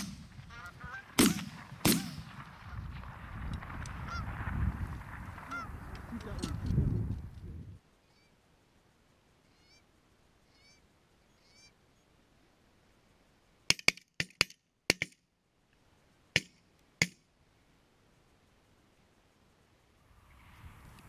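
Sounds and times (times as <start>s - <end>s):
faint goose honks: 0.0s - 1.3s, 5.4s - 5.8s, 9.5s - 9.9s
shotgun shots: 0.0s - 2.6s.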